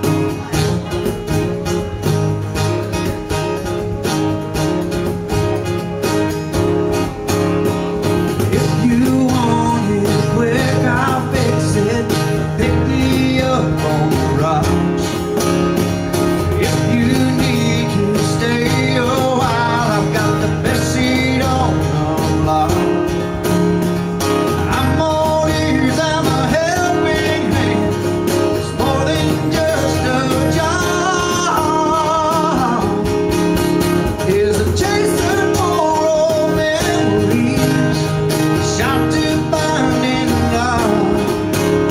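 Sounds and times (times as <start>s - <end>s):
cajon beat: 0.0s - 41.9s
strummed acoustic guitar: 0.0s - 41.9s
person singing with vibrato: 24.6s - 33.3s, 34.1s - 41.9s.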